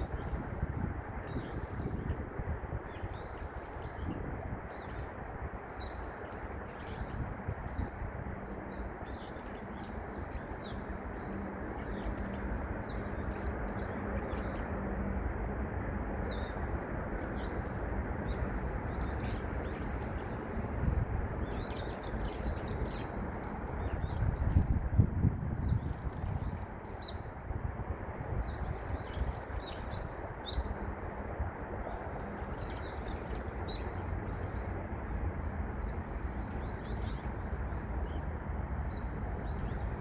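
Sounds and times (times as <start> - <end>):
songbirds chirping: 0.0 - 27.4.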